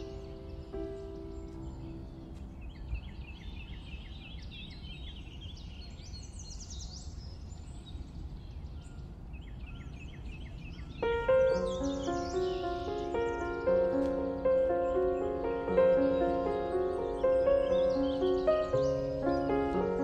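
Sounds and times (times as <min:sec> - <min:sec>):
music: 0:00.0 - 0:03.0, 0:11.0 - 0:20.0
small birds chirping: 0:00.0 - 0:20.0.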